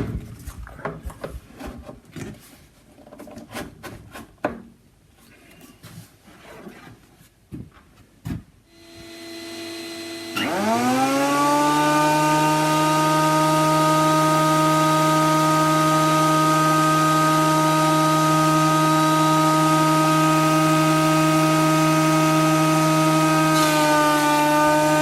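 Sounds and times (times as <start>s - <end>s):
dust extractor humming: 8.7s - 25.0s
planer motor whining: 8.7s - 25.0s.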